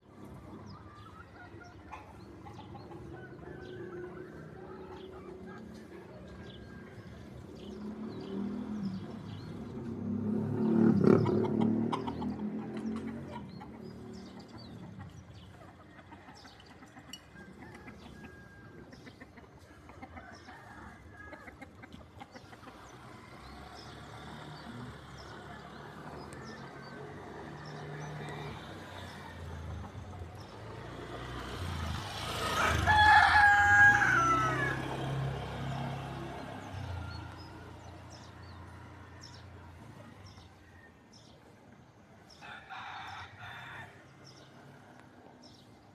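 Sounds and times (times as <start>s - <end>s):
rooster crowing: 32.4s - 35.3s.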